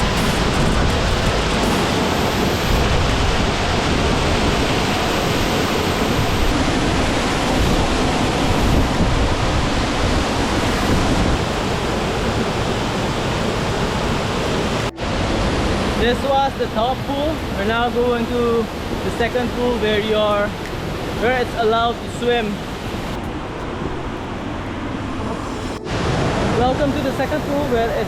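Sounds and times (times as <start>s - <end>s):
waterfall rushing: 22.0s - 28.0s.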